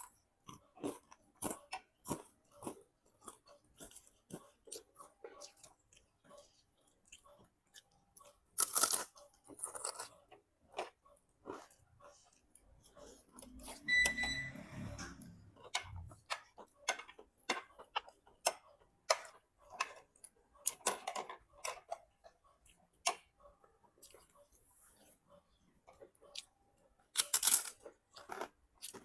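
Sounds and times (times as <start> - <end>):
short high beep: 13.8 - 15.1.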